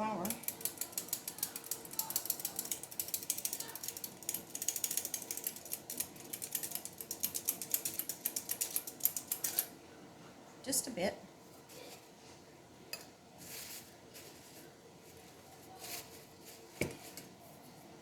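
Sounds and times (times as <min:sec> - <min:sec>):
flour sifter clicking: 0:00.3 - 0:09.7.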